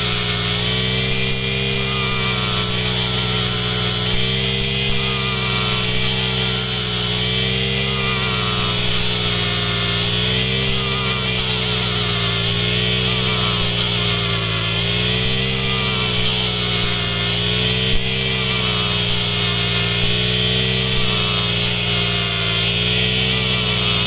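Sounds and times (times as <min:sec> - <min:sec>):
brush cutter engine running: 0:00.0 - 0:24.0.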